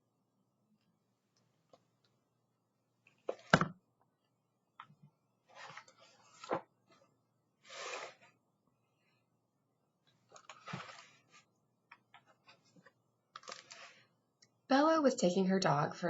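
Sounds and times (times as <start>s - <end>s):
book pages rustling: 5.5s - 7.1s, 10.2s - 11.5s, 12.2s - 14.0s.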